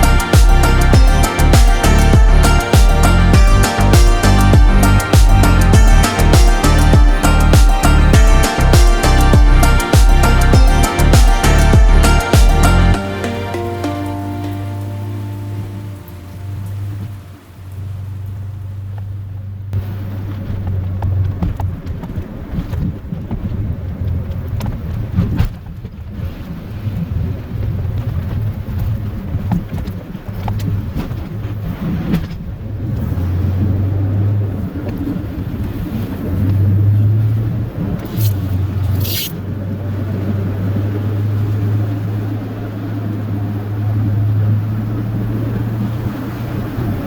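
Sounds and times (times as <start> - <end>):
truck engine running: 0.0 - 19.7
short high squeaks: 38.1 - 39.4.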